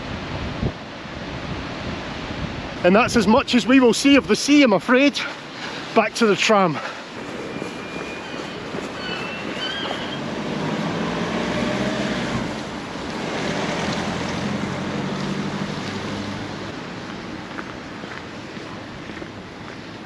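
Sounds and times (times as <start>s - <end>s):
wind on microphone: 0.0s - 4.3s, 7.0s - 14.8s
surf: 1.2s - 17.5s
vehicle engine passing: 7.1s - 17.0s.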